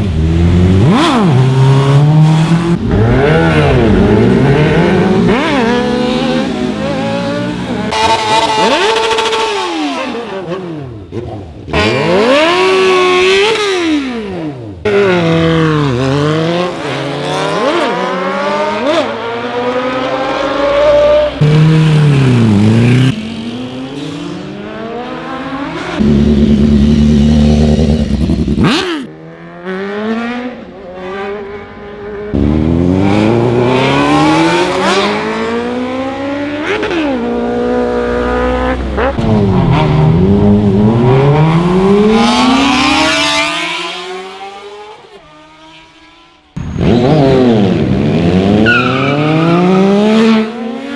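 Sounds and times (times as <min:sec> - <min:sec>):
motorcycles passing by: 0:00.0 - 0:48.6
motorcycle engines revving: 0:00.0 - 0:50.9.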